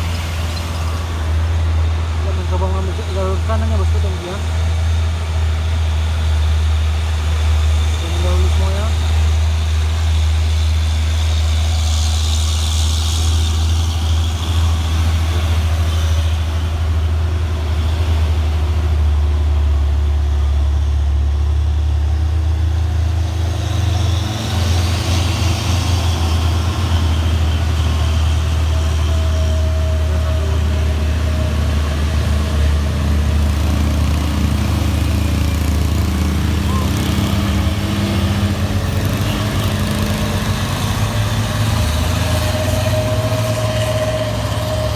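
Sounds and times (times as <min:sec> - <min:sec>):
diesel truck engines under load: 0:00.0 - 0:44.9.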